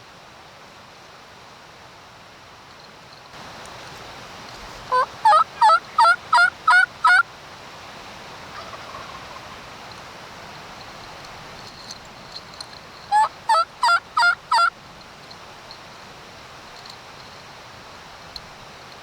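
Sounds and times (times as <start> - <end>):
turkey yelps: 4.9 - 7.2, 8.5 - 9.6, 13.1 - 14.7.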